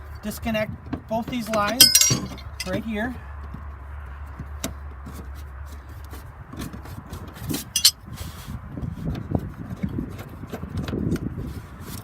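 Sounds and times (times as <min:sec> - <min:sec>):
wrenches clinking on metal: 0:01.4 - 0:02.8, 0:07.6 - 0:08.0.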